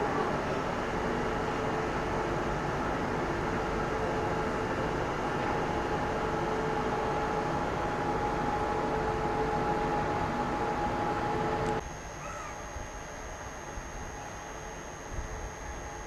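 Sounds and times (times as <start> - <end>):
steady humming tones: 0.0 - 16.0
train washing machine rumble and hiss: 0.0 - 16.0.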